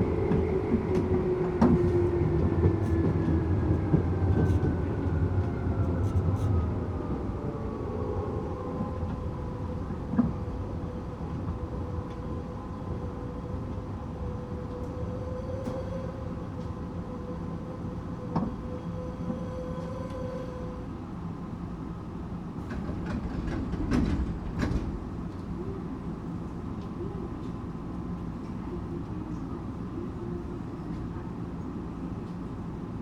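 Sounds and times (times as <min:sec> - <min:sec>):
train wheel rumble: 0:00.0 - 0:33.0
rail-joint clicks: 0:22.6 - 0:25.5.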